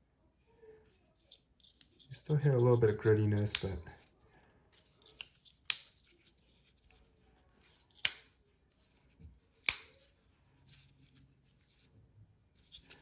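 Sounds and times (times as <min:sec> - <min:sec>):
folding knife blade clicking: 0:03.4 - 0:03.8, 0:05.0 - 0:06.0, 0:07.8 - 0:08.3, 0:09.6 - 0:10.0.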